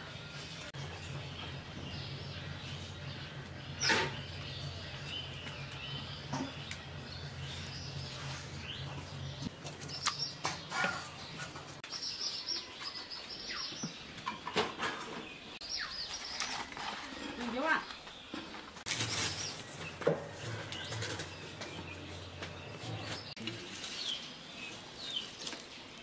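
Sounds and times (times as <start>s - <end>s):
birds chirping: 0.0s - 26.0s
banana leaf being handled: 18.4s - 20.0s.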